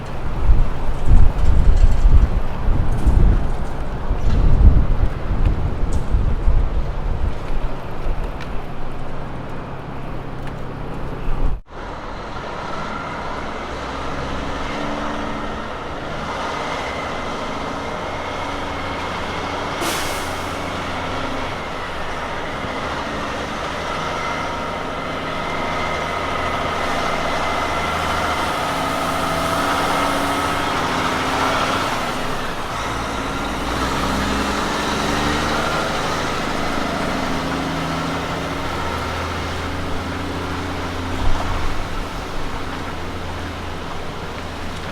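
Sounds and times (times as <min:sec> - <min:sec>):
diesel truck engine running: 0:00.0 - 0:44.9
tyre and driveline whine: 0:00.0 - 0:44.9
brief hiss: 0:19.8 - 0:20.8.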